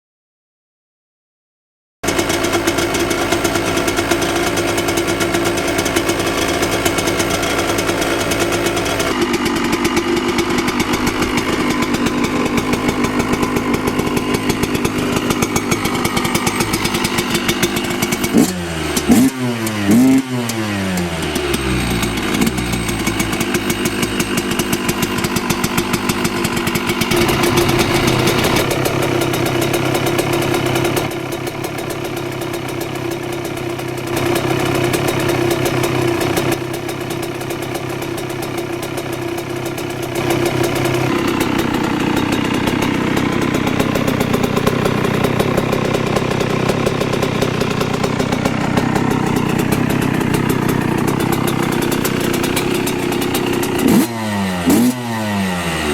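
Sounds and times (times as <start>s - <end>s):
motocross engine idling: 2.0s - 55.9s.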